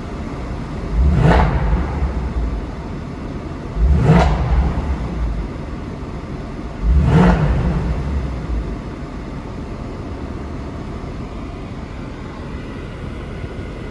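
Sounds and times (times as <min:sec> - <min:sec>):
car engine revving: 0:00.0 - 0:09.4
car engine idling: 0:00.0 - 0:13.9.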